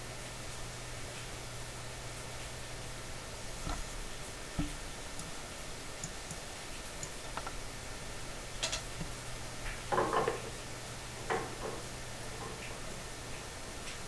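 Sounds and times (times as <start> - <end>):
steady hiss: 0.0 - 14.0
metal pipe fittings clicking: 8.6 - 9.1.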